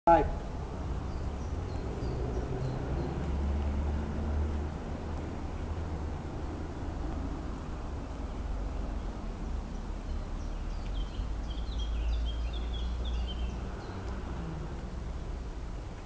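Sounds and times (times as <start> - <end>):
low outdoor rumble: 0.1 - 16.0
small bird chirping: 10.1 - 14.2.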